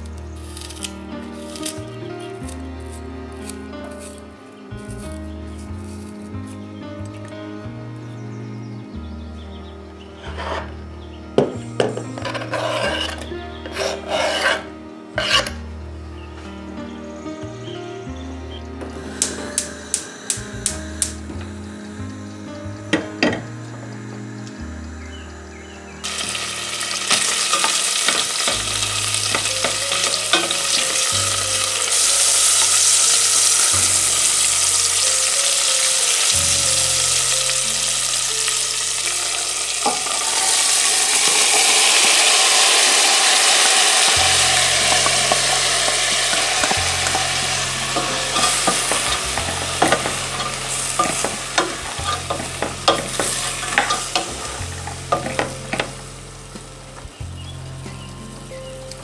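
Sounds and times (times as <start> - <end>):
meat sizzling in hot oil: 26.0 - 58.5
beans poured into pot: 40.0 - 49.7.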